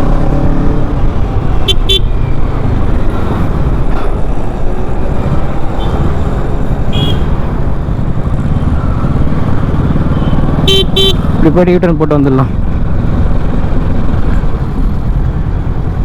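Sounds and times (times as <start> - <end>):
road noise rumble: 0.0 - 16.0
motorcycle engine running: 5.4 - 16.0
vehicle horn toot: 6.9 - 7.3, 10.2 - 11.2.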